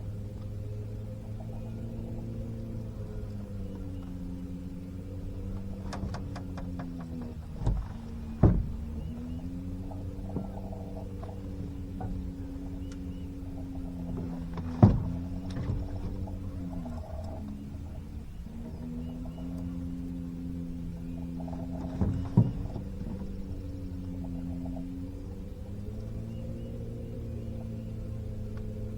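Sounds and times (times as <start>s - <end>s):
boat motor humming: 0.0s - 28.9s
sharp knocks: 5.7s - 12.9s, 13.6s - 16.2s.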